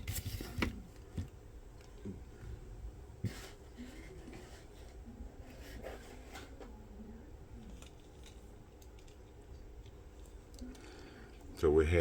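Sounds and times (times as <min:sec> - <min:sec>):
plastic packaging clicks and rustles: 0:07.6 - 0:10.9.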